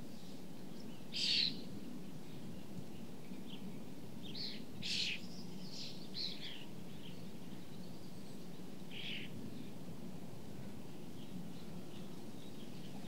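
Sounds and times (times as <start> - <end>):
birds calling: 0.8 - 1.9, 3.4 - 9.7.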